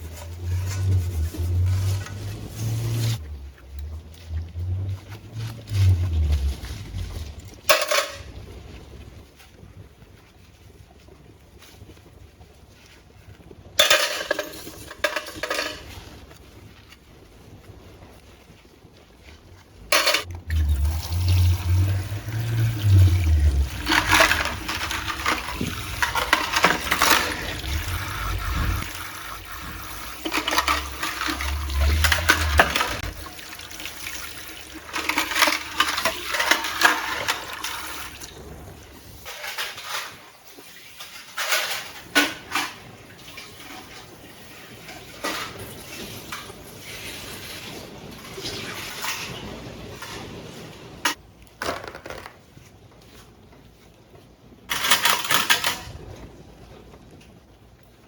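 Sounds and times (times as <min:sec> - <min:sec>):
low rumble: 0:00.0 - 0:09.3, 0:19.8 - 0:33.9
water rushing and splashing: 0:20.2 - 0:39.2.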